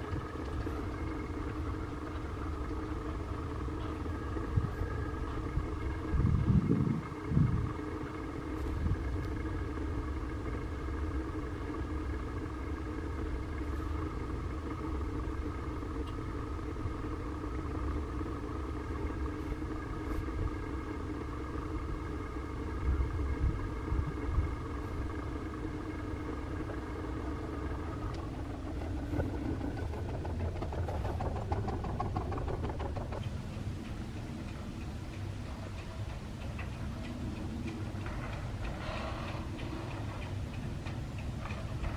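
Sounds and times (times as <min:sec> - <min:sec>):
low rumble: 0:00.0 - 0:41.9
rail vehicle mechanical hum: 0:00.0 - 0:41.9.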